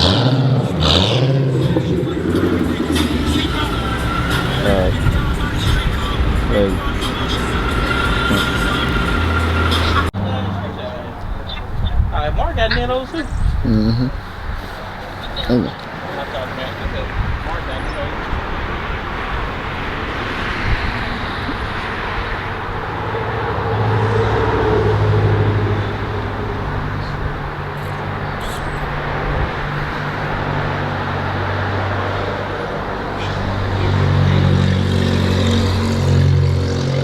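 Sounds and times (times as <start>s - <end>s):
car engine running: 0.0s - 13.0s, 14.2s - 37.0s
road and traffic noise: 0.0s - 37.0s.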